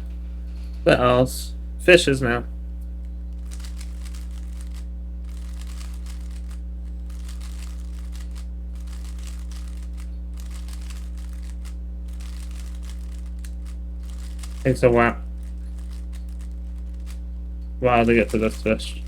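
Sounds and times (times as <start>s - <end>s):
low electrical hum: 0.0s - 19.0s
puzzle cube clicking and rattling: 3.4s - 17.2s, 18.0s - 18.8s.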